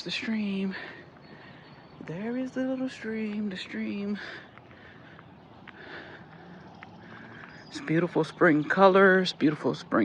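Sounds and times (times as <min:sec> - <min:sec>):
person breathing: 0:00.7 - 0:01.9, 0:04.1 - 0:07.7.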